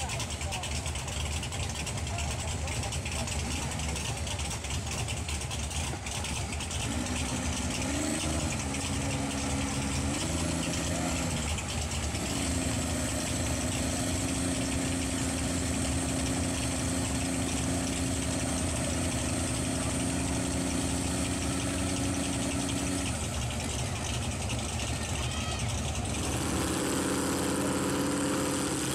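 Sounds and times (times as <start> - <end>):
truck engine running: 0.0 - 28.9.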